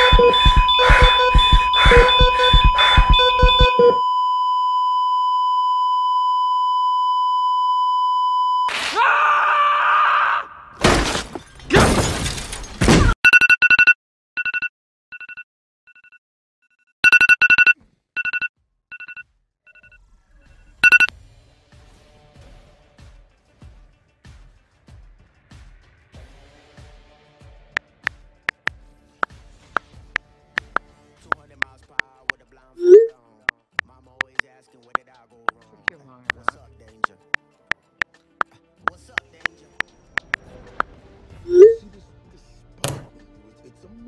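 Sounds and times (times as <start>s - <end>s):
heart monitor flatline tone: 0.0s - 8.6s, 20.8s - 21.1s
mobile phone beeps: 0.0s - 8.7s, 13.2s - 16.2s, 17.0s - 20.0s, 20.8s - 21.1s, 30.6s - 30.8s, 32.8s - 33.1s, 34.2s - 34.4s, 40.2s - 40.4s, 41.5s - 41.8s.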